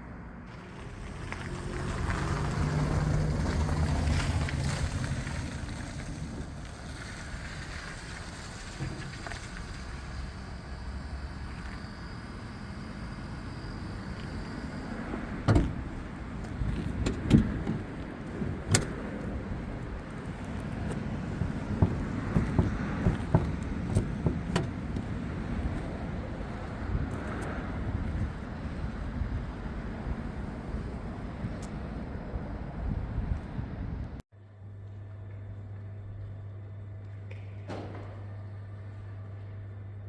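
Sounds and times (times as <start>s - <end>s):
tyre and road noise: 0.0s - 34.2s
sharp knocks: 21.5s - 25.1s.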